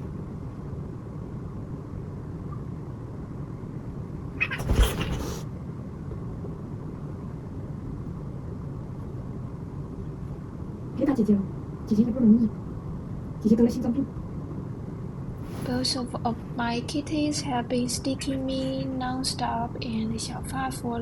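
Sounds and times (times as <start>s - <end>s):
cat hissing cry: 4.4s - 5.4s.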